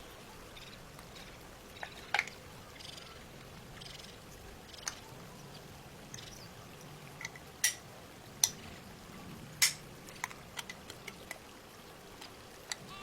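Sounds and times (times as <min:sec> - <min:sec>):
clicks of small model parts: 0:09.6 - 0:11.4, 0:12.2 - 0:12.8.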